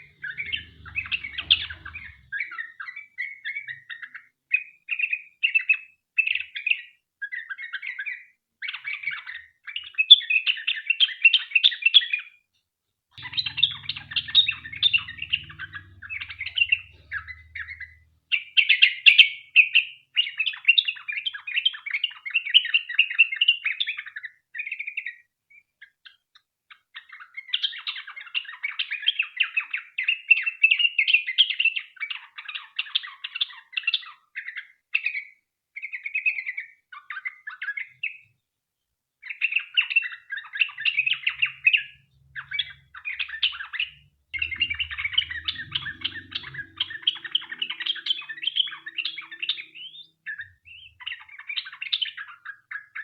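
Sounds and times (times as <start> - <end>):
bird chattering song: 0.0 - 4.1, 13.2 - 21.8, 39.3 - 53.0.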